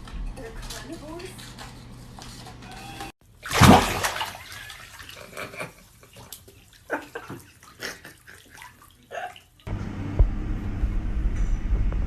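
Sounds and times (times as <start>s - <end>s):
water splashing and sloshing: 3.2s - 9.7s.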